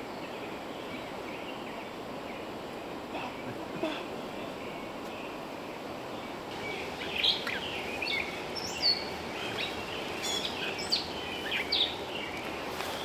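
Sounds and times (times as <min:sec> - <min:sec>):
steady background hiss: 0:00.0 - 0:13.0
birds chirping: 0:03.2 - 0:13.0.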